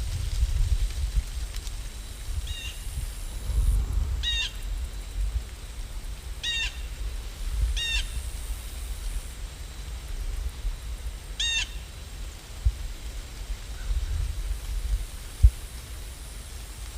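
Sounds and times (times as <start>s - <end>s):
low rumble: 2.3s - 9.2s
bird calling: 4.2s - 4.6s.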